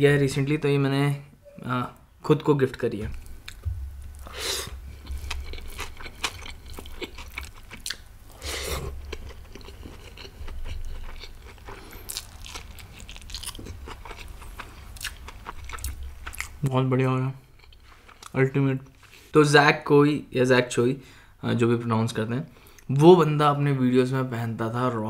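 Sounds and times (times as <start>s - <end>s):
chewing food: 5.0s - 8.0s, 8.8s - 16.6s.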